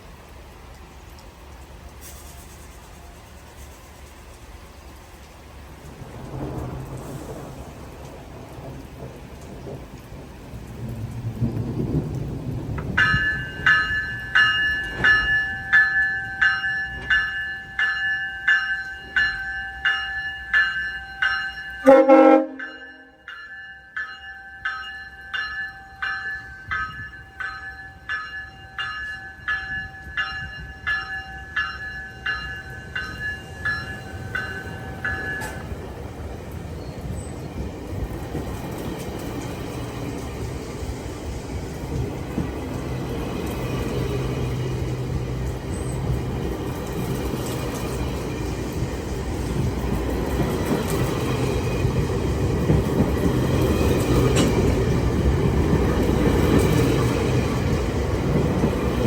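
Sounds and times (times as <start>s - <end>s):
railway bell ringing: 12.8s - 59.0s.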